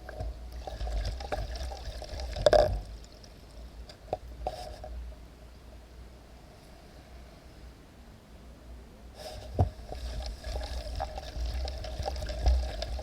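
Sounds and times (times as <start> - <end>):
paddle splashing in water: 9.3 - 13.0.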